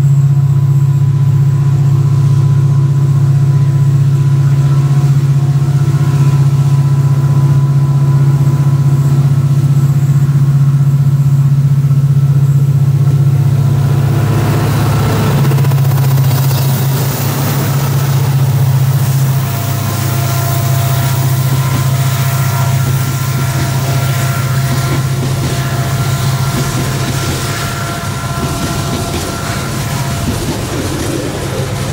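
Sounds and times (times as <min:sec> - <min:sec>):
diesel locomotive engine drone: 0:00.0 - 0:31.9
wagons rolling on rails: 0:13.7 - 0:31.9.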